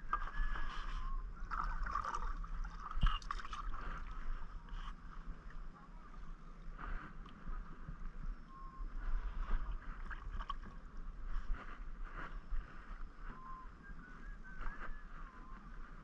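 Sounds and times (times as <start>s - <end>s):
faint thin whistle: 0.0s - 1.3s, 3.0s - 3.4s, 8.3s - 9.8s, 12.2s - 16.0s
steady low rumble: 0.0s - 16.0s
wind on microphone: 0.0s - 16.0s
paddle splashing in water: 0.1s - 4.9s.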